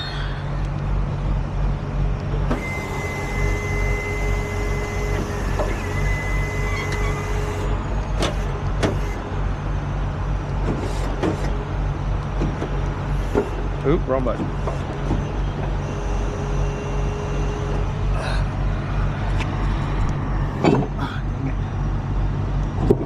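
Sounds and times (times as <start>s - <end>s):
truck engine idling: 0.0s - 23.0s
whining hiss from equipment: 2.5s - 7.7s.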